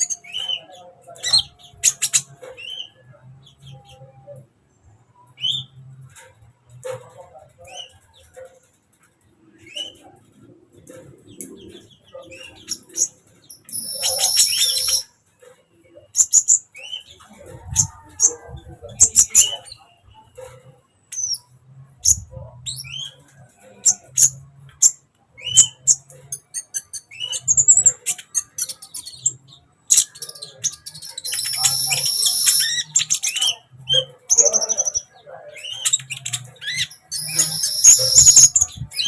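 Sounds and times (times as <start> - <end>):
bird singing sharp chips: 12.3 - 15.1, 25.4 - 39.0
buzzy bird trill: 12.4 - 15.1, 25.4 - 39.0.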